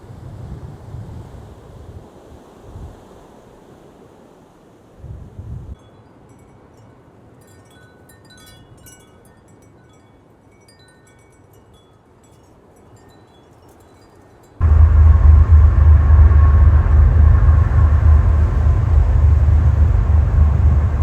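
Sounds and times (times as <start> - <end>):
wind hissing: 14.6 - 21.0
wind rumble on microphone: 14.6 - 21.0.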